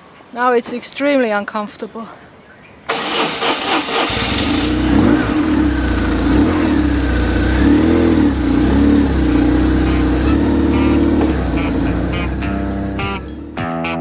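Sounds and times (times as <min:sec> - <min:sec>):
motorcycle engine revving: 0:03.1 - 0:13.6.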